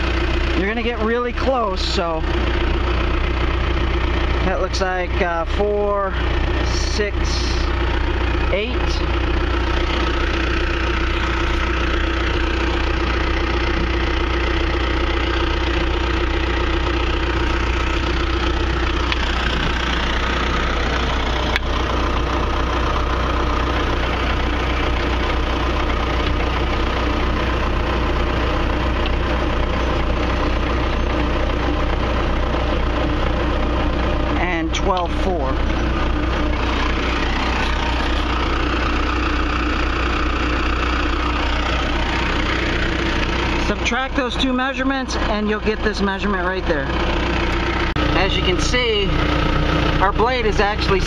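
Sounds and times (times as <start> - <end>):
diesel engine idling: 0.0 - 51.0.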